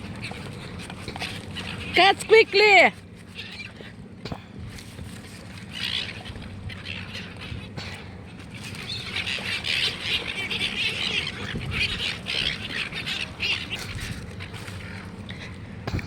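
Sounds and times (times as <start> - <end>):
gulls squawking: 8.8 - 13.8.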